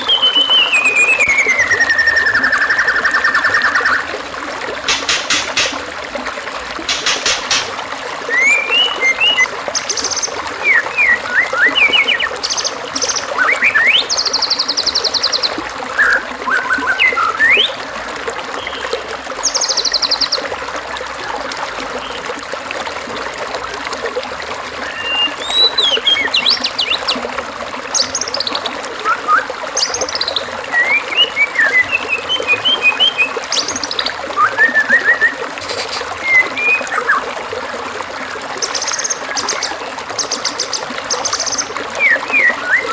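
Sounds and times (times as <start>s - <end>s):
songbird singing: 0.0s - 4.1s, 8.3s - 17.8s, 18.6s - 20.5s, 24.8s - 27.3s, 27.9s - 42.9s
trickling water: 0.0s - 42.9s.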